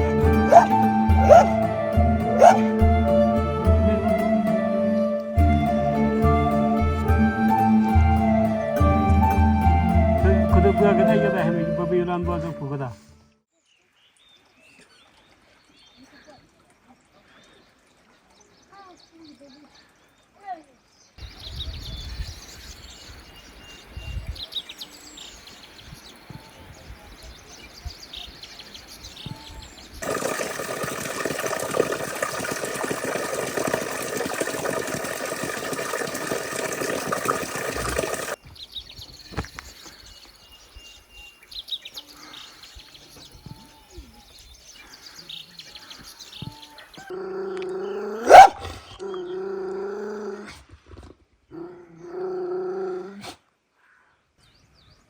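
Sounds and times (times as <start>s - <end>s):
birds chirping: 0.0s - 2.9s, 21.0s - 47.1s
animal call with rising cry: 0.4s - 1.7s, 2.4s - 2.8s.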